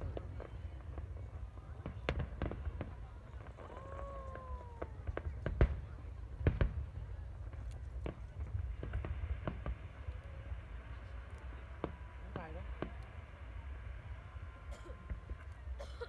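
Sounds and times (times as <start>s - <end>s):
firework bangs and crackles: 0.0s - 16.0s
falling firework whistle: 2.2s - 5.3s.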